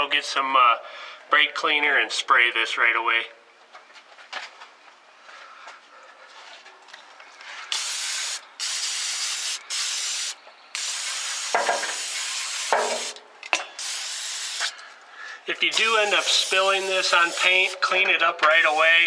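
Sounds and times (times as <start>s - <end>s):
aerosol spray hissing: 7.7s - 13.2s, 13.8s - 14.8s, 15.7s - 17.8s, 18.5s - 19.0s.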